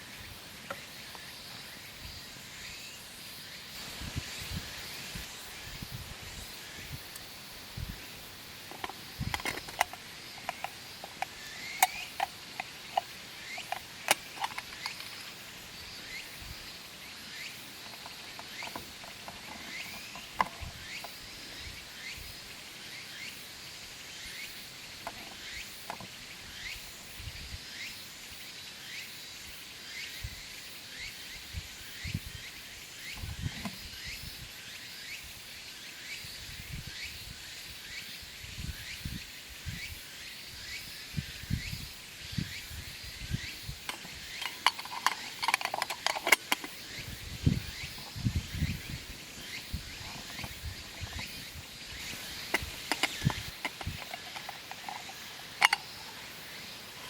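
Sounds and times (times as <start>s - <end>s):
twigs crackling and popping in stove: 43.9s - 46.8s, 52.1s - 56.0s.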